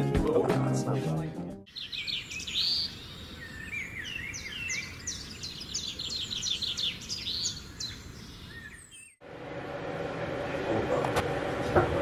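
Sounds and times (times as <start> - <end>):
songbirds chirping: 0.0 - 9.2.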